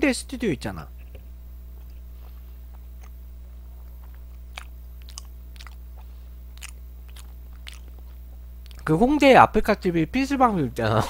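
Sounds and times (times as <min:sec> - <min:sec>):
low electrical hum: 0:00.0 - 0:11.0
person chewing food: 0:01.0 - 0:08.9.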